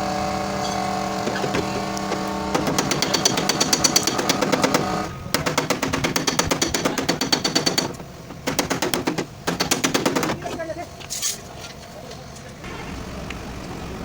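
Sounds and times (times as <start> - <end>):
rapid hammering on metal: 1.2 - 10.4.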